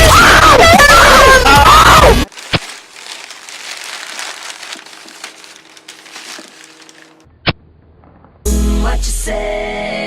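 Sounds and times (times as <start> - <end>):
packing material crinkling and rustling: 2.3 - 7.3.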